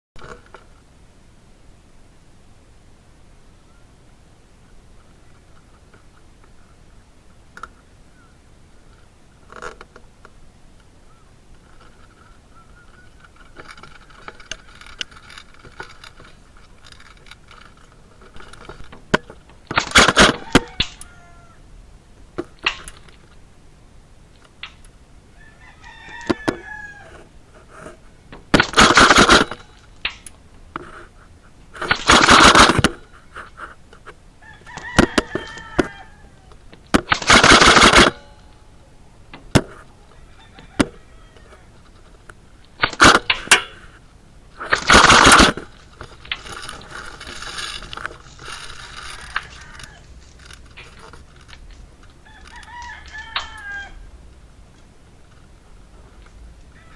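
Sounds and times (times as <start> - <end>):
sharp cracks: 11.5 - 21.1, 22.4 - 23.4, 24.3 - 25.0, 26.0 - 31.1, 31.7 - 38.6, 40.7 - 54.0
rooster crowing: 20.2 - 21.7, 25.3 - 27.3, 34.4 - 36.6, 40.0 - 41.8, 48.8 - 50.2, 52.2 - 54.2.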